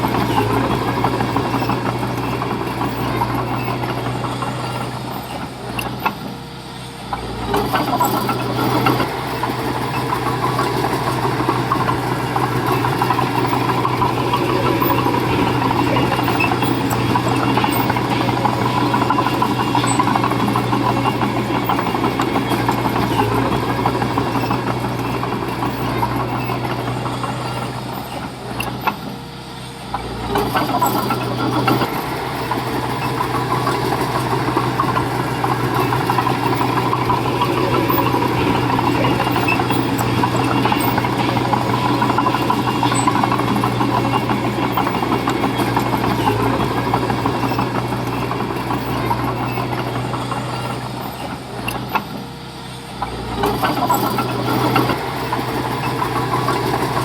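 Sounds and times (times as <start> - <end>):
construction machinery engine drone: 0.0 - 57.0.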